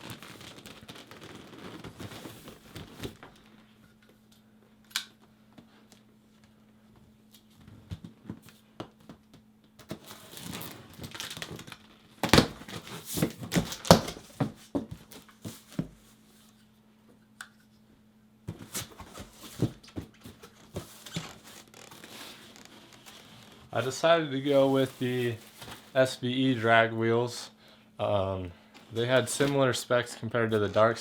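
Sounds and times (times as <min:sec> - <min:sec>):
cardboard box torn open: 0:09.8 - 0:14.5.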